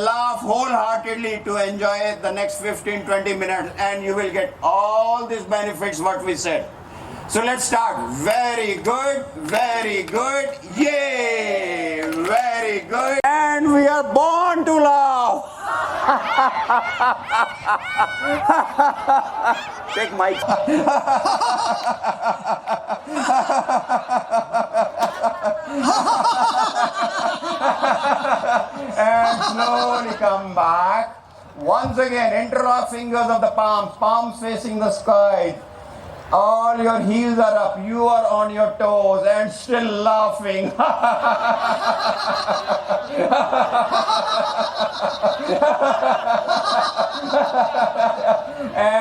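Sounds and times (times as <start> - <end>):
group of people laughing: 15.3 - 30.6, 40.6 - 49.0.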